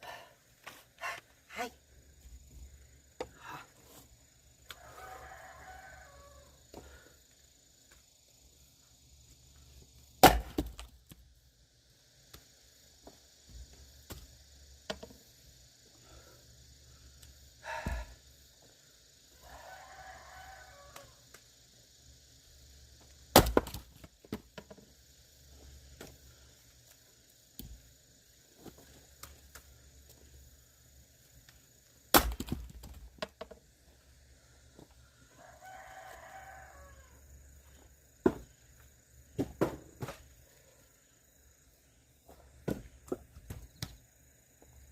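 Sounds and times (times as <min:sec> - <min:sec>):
rooster crowing: 0:04.7 - 0:07.0, 0:19.4 - 0:21.2, 0:35.3 - 0:37.3
axe splitting wood: 0:10.2 - 0:10.9, 0:23.3 - 0:24.0, 0:32.1 - 0:33.1.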